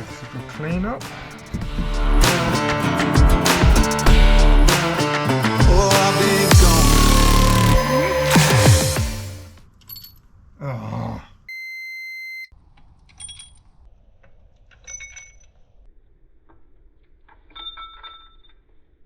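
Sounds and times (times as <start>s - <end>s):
metallic clinks of engine parts: 13.1s - 13.8s, 14.7s - 15.7s, 17.3s - 18.9s.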